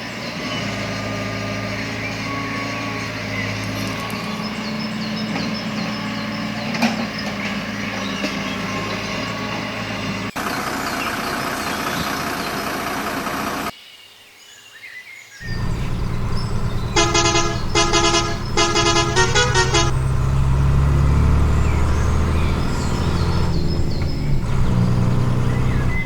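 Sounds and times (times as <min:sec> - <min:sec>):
rough loud engine noise: 0:00.1 - 0:13.7, 0:15.4 - 0:26.0
truck engine running: 0:07.7 - 0:13.7, 0:15.4 - 0:26.0.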